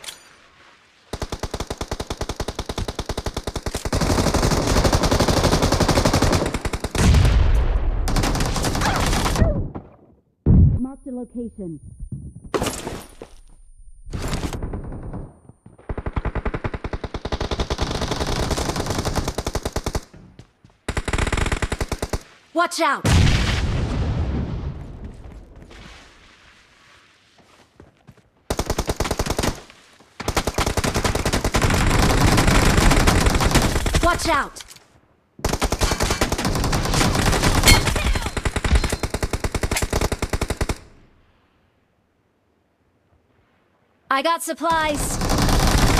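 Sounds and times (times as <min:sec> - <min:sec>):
video game automatic gunfire: 0:30.2 - 0:34.0, 0:44.8 - 0:45.9.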